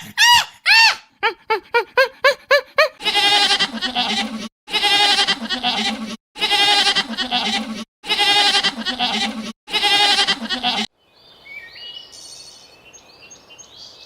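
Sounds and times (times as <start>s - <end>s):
goat bleating: 3.0s - 10.9s.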